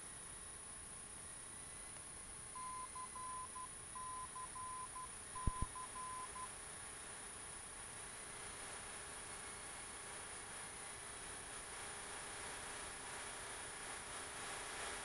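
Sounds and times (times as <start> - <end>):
morse code beeps on radio: 2.6 - 6.5.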